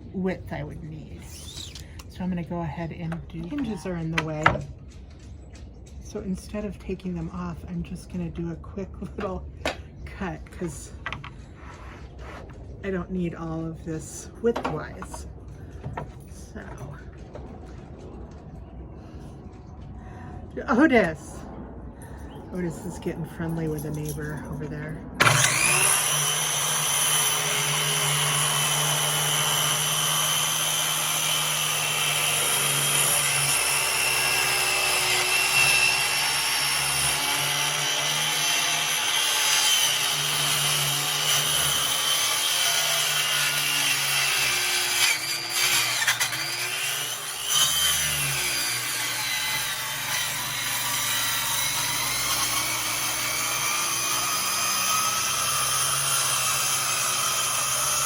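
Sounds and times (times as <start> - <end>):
electric power saw cutting: 1.2 - 2.1, 25.2 - 58.0.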